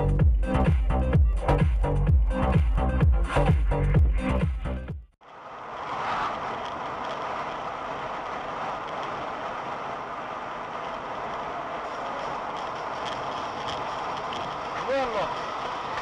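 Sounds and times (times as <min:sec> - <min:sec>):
vehicle tyres and engine hiss: 0:05.2 - 0:16.0.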